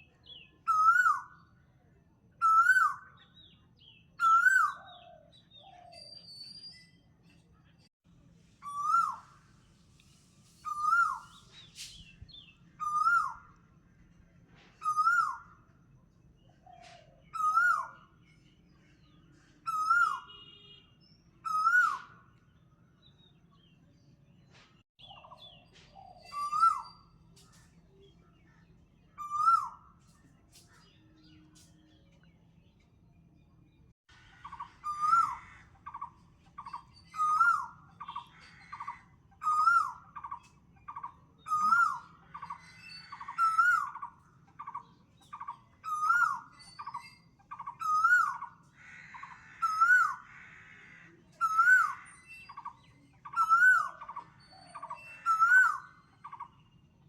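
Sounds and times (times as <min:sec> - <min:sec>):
whistled bird call: 0:00.6 - 0:01.5, 0:02.4 - 0:03.2, 0:08.6 - 0:09.4, 0:10.6 - 0:13.6, 0:14.8 - 0:15.6, 0:17.2 - 0:18.1, 0:19.6 - 0:20.8, 0:21.4 - 0:22.3, 0:25.0 - 0:27.3, 0:29.2 - 0:30.0, 0:34.5 - 0:48.6, 0:51.3 - 0:56.6
faint high chirps: 0:24.5 - 0:48.6.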